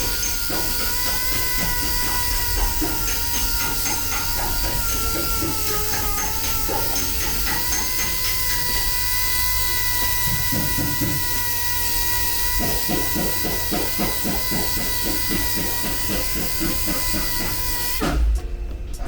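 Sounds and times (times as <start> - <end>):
power tool motor whining: 0.0 - 19.0.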